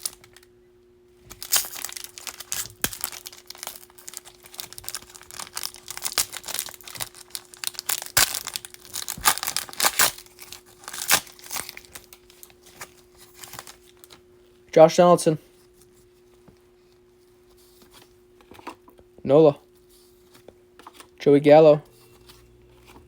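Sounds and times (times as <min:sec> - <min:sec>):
foil wrapper crinkling: 0:00.0 - 0:00.4, 0:01.2 - 0:14.2
faint steady hum: 0:00.0 - 0:23.0.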